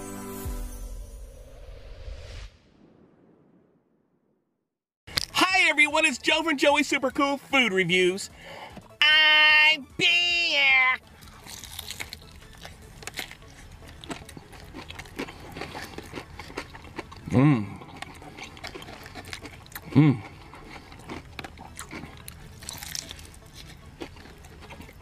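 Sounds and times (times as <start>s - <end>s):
chewing and wet mouth clicks: 11.3s - 25.0s
person humming mmm: 17.2s - 18.0s, 19.8s - 20.4s.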